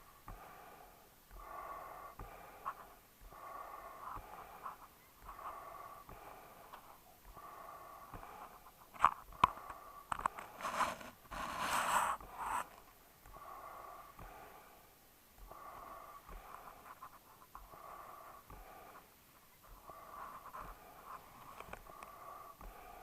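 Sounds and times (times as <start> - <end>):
dog breathing and snorting: 0.3 - 23.0
dog snuffling: 1.4 - 14.3.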